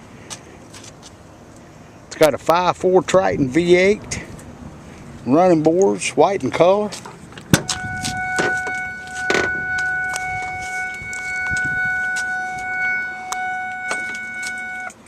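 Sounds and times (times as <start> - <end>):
car warning chime tone: 7.6 - 15.0.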